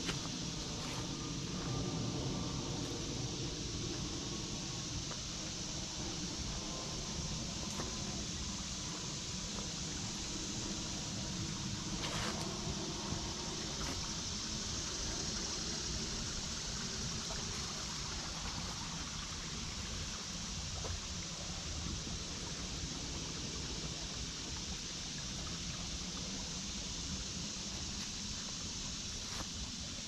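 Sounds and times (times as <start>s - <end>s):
creek babbling: 0.0s - 29.9s.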